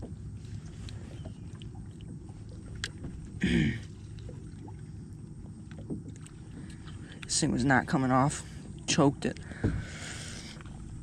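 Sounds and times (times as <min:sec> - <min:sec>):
low steady rumble: 0:00.0 - 0:11.0
short grunt: 0:03.4 - 0:03.9.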